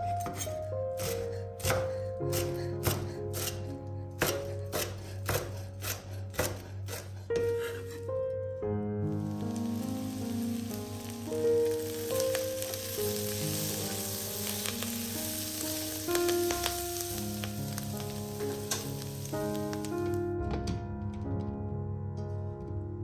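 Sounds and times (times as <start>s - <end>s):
soft background music: 0.0s - 23.0s
food sizzling in a wok: 9.1s - 20.2s.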